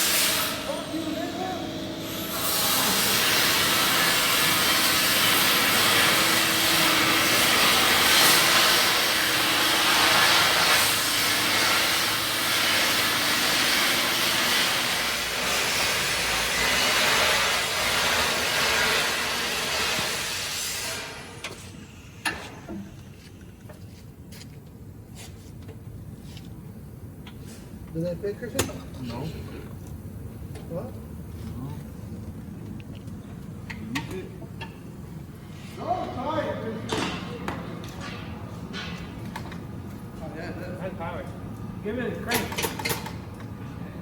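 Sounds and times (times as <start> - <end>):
loud steady hiss: 0.0 - 22.7.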